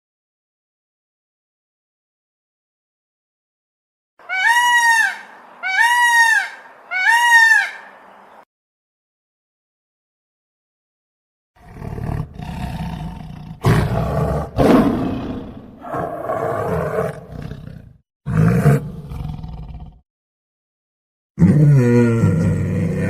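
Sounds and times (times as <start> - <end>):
large animal roaring: 11.6 - 20.0, 21.4 - 23.0.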